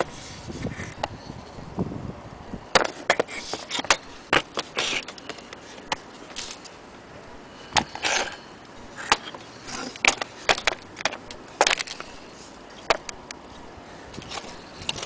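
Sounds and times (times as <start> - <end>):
scraping rustles: 2.8 - 6.8, 7.6 - 15.0.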